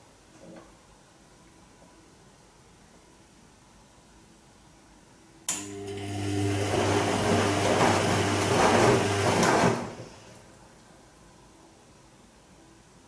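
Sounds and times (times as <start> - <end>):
washing machine humming: 5.5 - 10.8.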